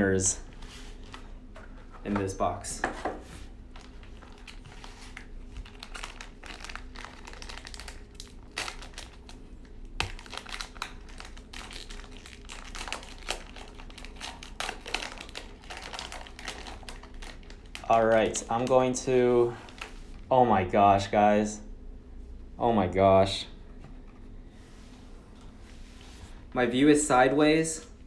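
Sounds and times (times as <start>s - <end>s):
packaging crinkling as torn open: 3.7s - 18.8s.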